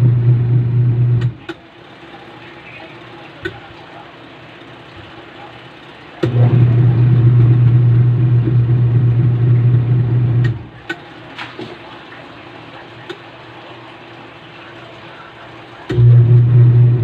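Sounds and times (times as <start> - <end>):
washing machine motor humming: 0.0 - 17.0.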